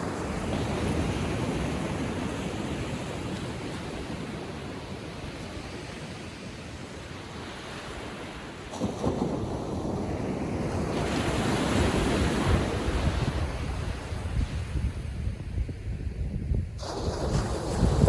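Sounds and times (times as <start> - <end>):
wind rumble on microphone: 8.7 - 18.0
ocean wave breaking: 16.8 - 18.0.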